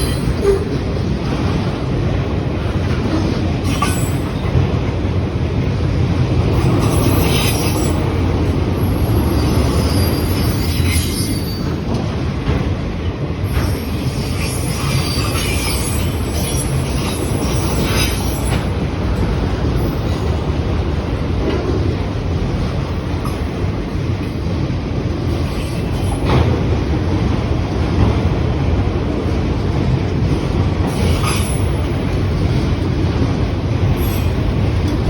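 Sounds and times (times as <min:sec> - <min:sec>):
steel wheels squealing on rails: 0:00.0 - 0:01.0, 0:03.1 - 0:04.7, 0:06.4 - 0:12.3, 0:13.1 - 0:20.5, 0:25.2 - 0:26.6, 0:30.8 - 0:35.0.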